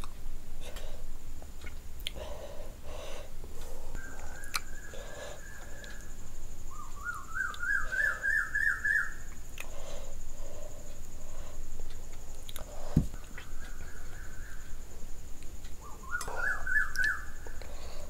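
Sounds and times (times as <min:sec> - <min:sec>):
person chewing food: 0:01.6 - 0:02.2, 0:03.6 - 0:04.7, 0:11.8 - 0:13.9
bird whistling call: 0:06.7 - 0:09.3, 0:15.8 - 0:17.4.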